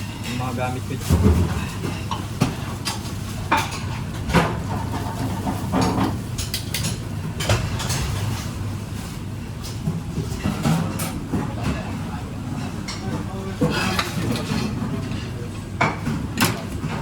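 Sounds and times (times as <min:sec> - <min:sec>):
dishes and utensils clinking: 0:12.5 - 0:17.0.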